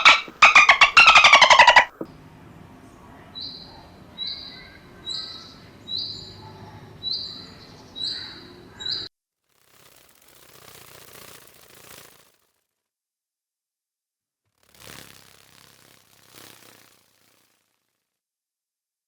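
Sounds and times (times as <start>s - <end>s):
animal whistle-like call: 0.0s - 2.0s.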